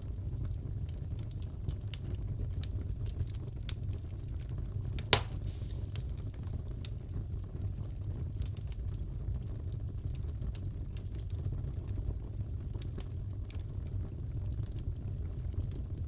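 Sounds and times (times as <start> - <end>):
wood fire popping: 0.8 - 8.9
fireplace crackling: 4.9 - 7.1.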